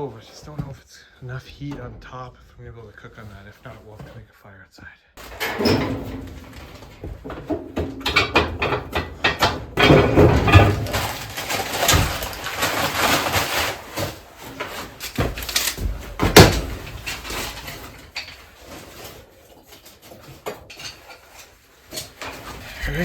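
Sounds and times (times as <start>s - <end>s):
creaks and scrapes at wood stove: 5.2s - 23.0s.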